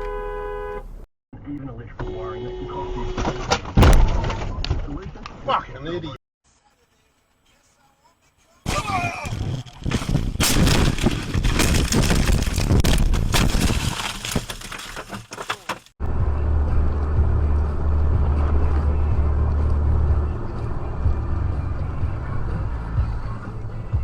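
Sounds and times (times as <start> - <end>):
road and engine drone: 15.7 - 24.0.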